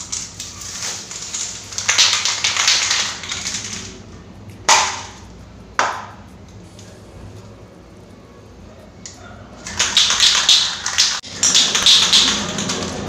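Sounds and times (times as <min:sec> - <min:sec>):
spray paint can hissing: 0:00.0 - 0:04.0, 0:09.6 - 0:13.0.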